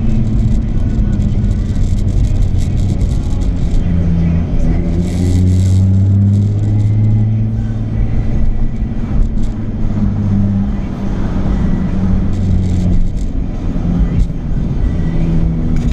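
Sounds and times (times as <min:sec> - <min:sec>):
car exhaust low drone: 0:00.0 - 0:15.9.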